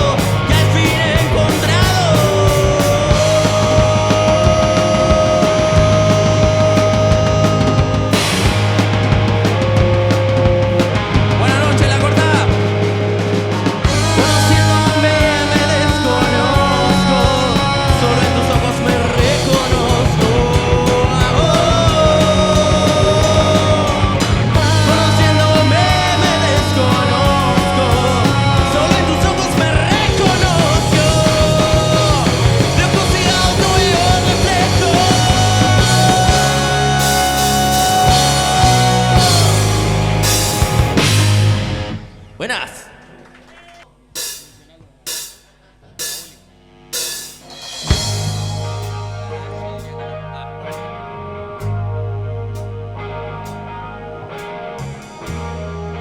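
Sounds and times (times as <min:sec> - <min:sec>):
rock band playing live: 0:00.0 - 0:43.6, 0:44.2 - 0:56.0.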